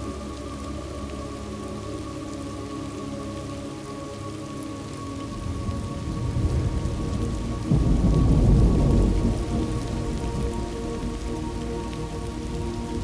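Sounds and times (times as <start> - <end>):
steady rain: 0.0 - 13.0
thunder rolling: 5.6 - 10.6.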